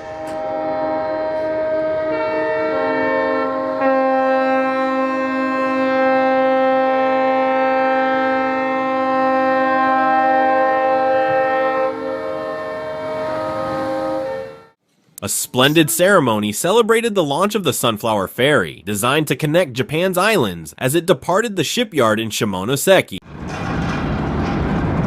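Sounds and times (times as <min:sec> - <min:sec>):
ships' horns blasting: 0:00.0 - 0:16.6.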